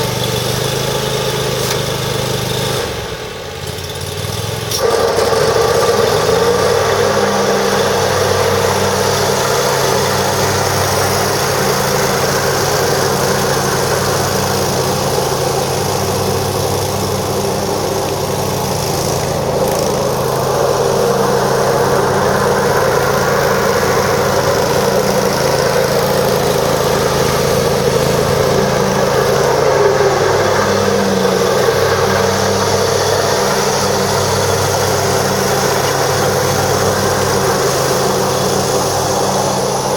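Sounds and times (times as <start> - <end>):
mower engine running: 0.0 - 39.9.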